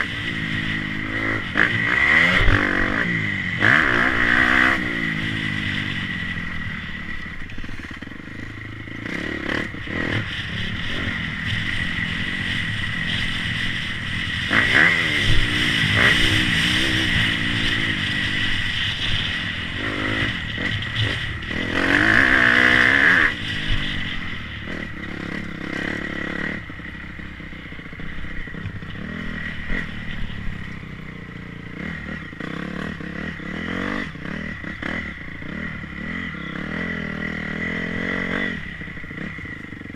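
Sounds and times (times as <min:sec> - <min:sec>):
motocross bikes revving and passing: 0:00.0 - 0:39.9.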